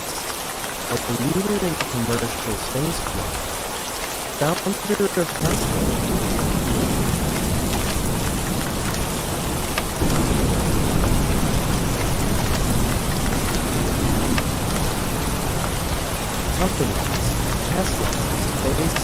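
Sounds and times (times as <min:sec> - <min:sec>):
heavy rain: 0:00.0 - 0:19.0
low rumble of thunder: 0:05.5 - 0:19.0.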